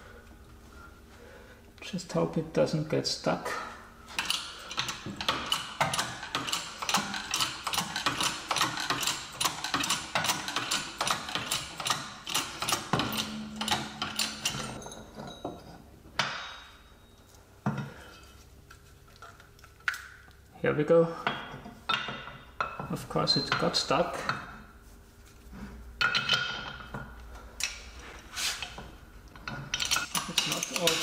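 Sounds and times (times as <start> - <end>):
hand ratchet clicking: 4.2 - 14.7, 29.8 - 31.0.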